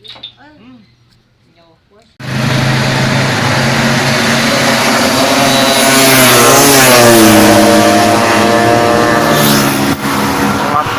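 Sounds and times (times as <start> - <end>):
scooter engine revving high: 2.2 - 10.9.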